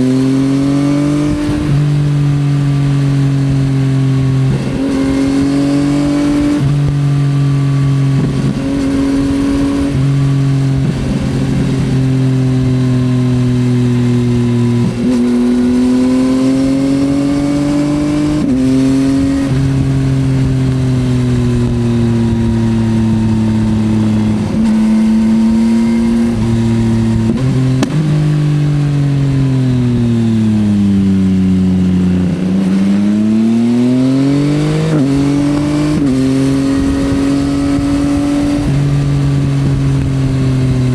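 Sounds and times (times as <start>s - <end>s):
motorcycle engine accelerating: 0.0s - 40.9s
wind rush: 14.0s - 40.9s.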